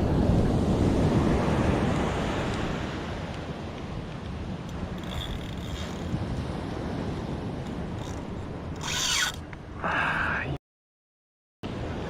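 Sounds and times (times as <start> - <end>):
ocean surf washing on beach: 0.0 - 5.0.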